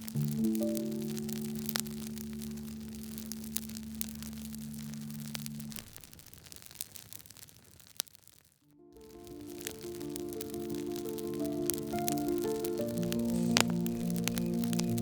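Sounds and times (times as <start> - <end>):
firewood crackling and popping: 0.0 - 15.0
held music chord: 8.8 - 15.0.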